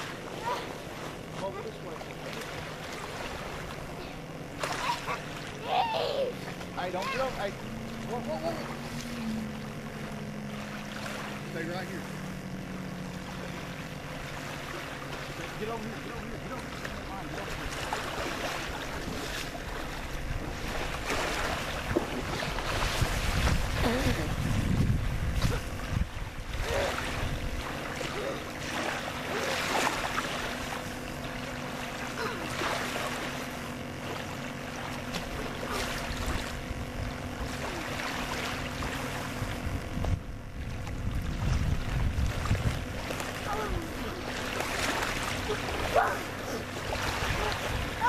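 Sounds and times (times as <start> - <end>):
motorboat engine droning: 0.0 - 48.0
water noise: 0.0 - 48.0
wind buffeting microphone: 21.8 - 27.8, 39.3 - 44.0
faint voices: 43.2 - 48.0.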